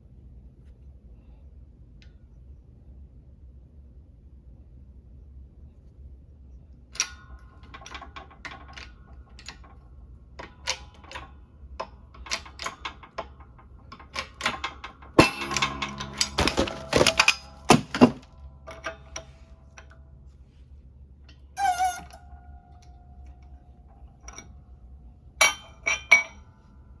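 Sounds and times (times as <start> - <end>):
metal tools clinking and knocking: 14.0 - 19.9
rattling knocks: 15.2 - 19.3
ringing metal clank: 15.2 - 19.9.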